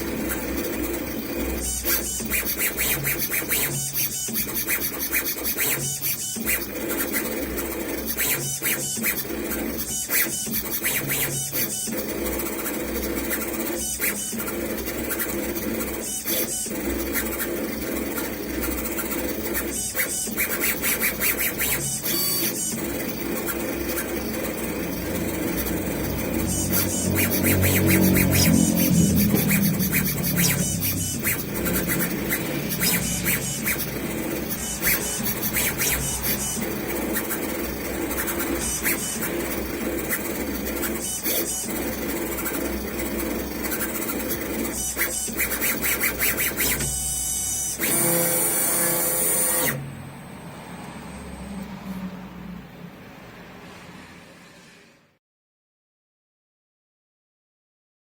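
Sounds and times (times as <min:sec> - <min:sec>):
engraving machine motors whirring: 0:00.0 - 0:49.8
tool scratching metal: 0:12.6 - 0:47.0.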